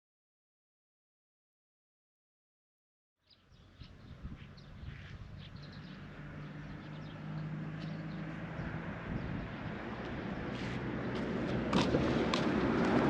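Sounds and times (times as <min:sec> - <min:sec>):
small birds chirping: 0:03.2 - 0:11.3.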